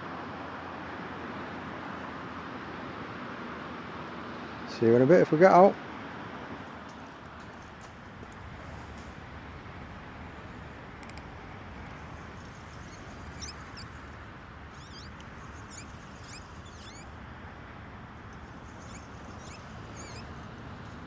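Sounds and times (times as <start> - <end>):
small birds chirping: 6.6 - 21.0.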